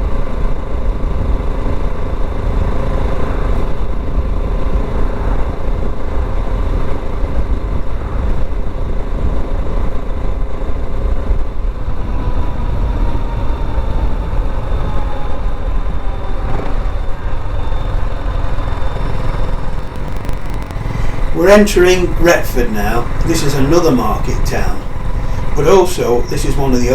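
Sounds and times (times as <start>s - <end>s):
wind rumble on microphone: 0.0s - 26.9s
motorcycle engine running: 16.5s - 26.9s.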